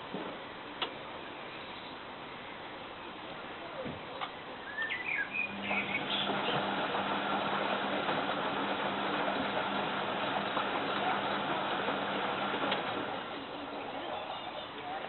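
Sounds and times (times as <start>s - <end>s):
low machine hum: 4.5s - 15.0s.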